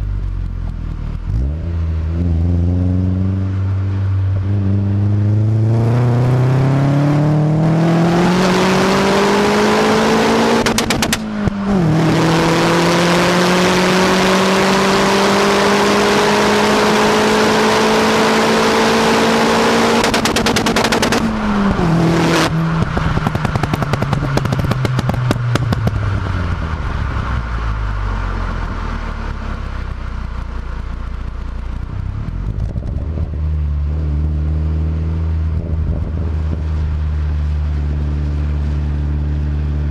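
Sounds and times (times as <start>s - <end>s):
car engine revving: 0.0s - 39.9s
exhaust pops and bangs: 10.6s - 11.7s, 20.0s - 21.8s, 22.7s - 26.2s.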